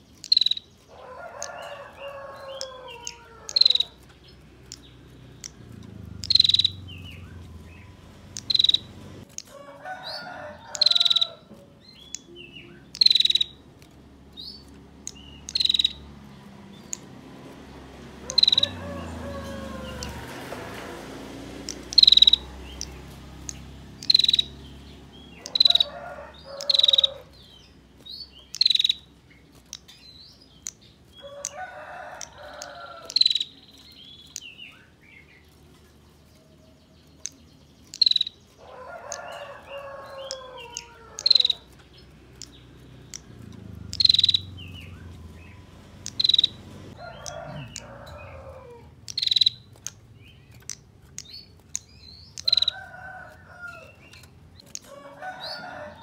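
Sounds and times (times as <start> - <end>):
bird buzzy calls: 0.0 - 29.9, 37.2 - 50.0
rooster crowing: 0.9 - 4.1, 5.8 - 11.5, 17.6 - 21.2, 25.1 - 27.4, 31.2 - 33.4, 38.6 - 41.8, 43.1 - 49.5, 52.4 - 54.0, 54.8 - 56.0.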